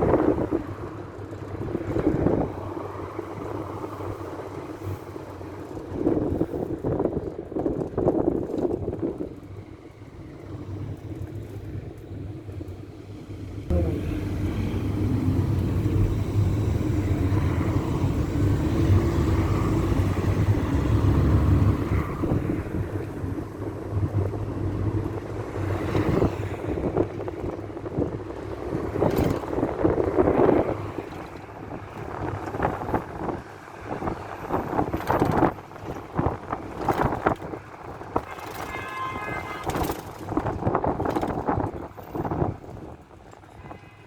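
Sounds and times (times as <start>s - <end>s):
minibus engine and road rumble: 0.0s - 44.0s
body knocks and rattles: 26.8s - 43.5s.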